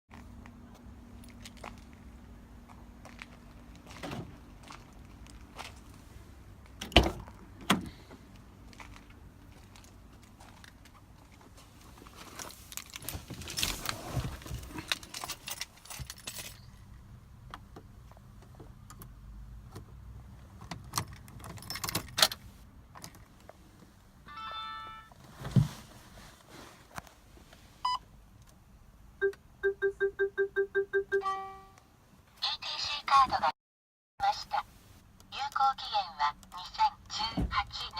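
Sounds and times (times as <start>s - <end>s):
keys jangling: 12.8s - 16.8s, 20.9s - 22.4s
car warning chime: 24.3s - 25.1s.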